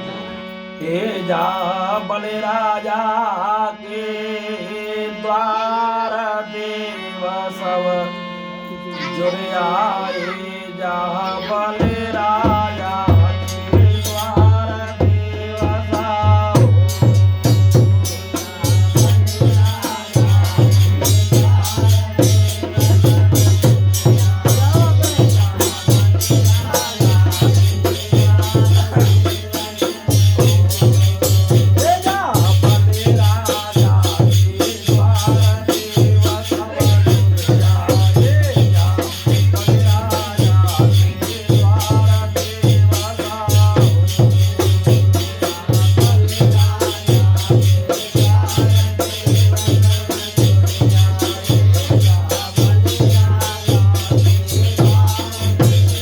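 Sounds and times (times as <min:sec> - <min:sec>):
deep drum beat: 0:11.8 - 0:56.0
jingling rattle rhythm: 0:12.0 - 0:56.0.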